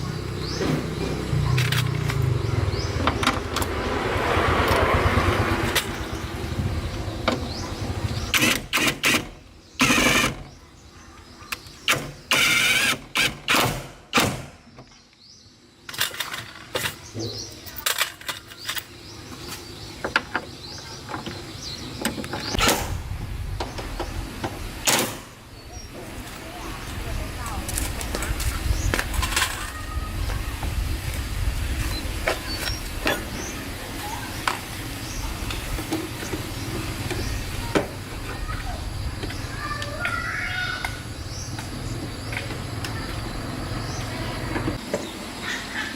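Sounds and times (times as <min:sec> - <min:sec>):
loud mechanical bursts: 0:04.2 - 0:10.5, 0:11.9 - 0:14.5
steady low rumble: 0:22.6 - 0:24.8.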